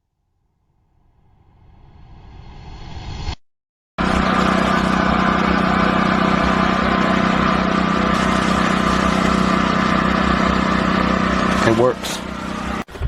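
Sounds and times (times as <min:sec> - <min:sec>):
small engine running: 0:04.0 - 0:13.0.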